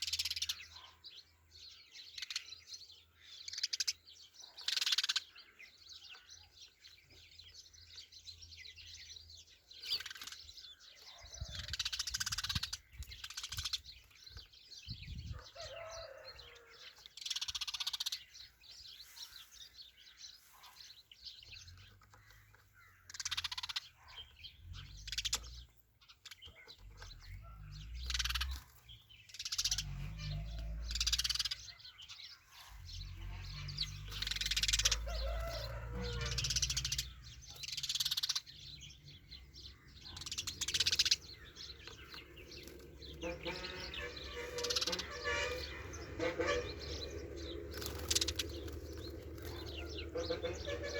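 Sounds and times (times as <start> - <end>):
sparrow chirping: 0.0 - 50.9
low rumble on microphone: 14.8 - 15.6.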